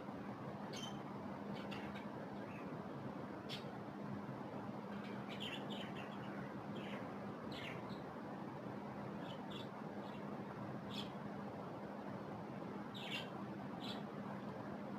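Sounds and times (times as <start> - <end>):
constant hiss: 0.0 - 14.9
budgerigars chirping: 5.0 - 8.0, 13.0 - 14.1.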